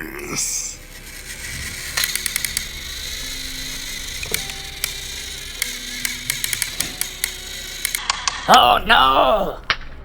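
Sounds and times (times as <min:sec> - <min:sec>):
toy train motors whirring: 0:00.2 - 0:08.4
sharp plastic clicks: 0:01.3 - 0:08.4.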